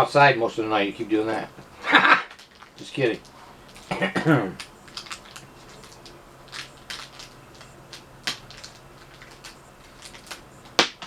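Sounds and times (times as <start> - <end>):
hands handling screws and hardware: 2.2 - 11.0.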